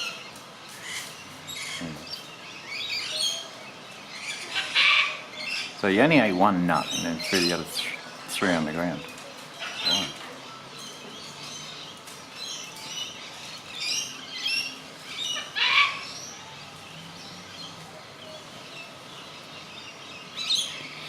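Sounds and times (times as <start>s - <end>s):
parrot calls: 4.2s - 5.7s, 15.2s - 16.2s.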